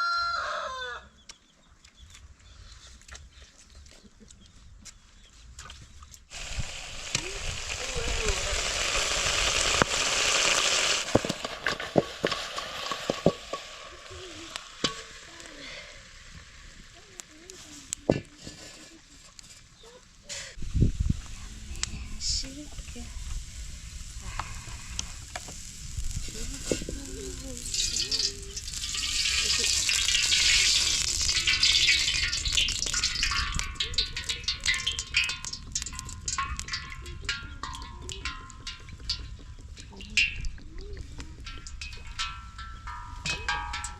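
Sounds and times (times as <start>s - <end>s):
food sizzling in a pan: 6.3s - 18.1s, 20.5s - 39.4s.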